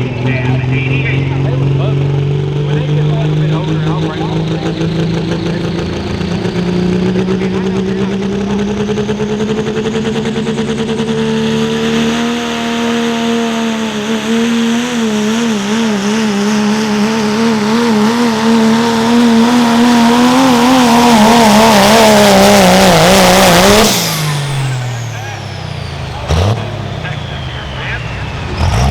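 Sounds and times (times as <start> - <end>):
diesel engine at full throttle: 0.0 - 28.9.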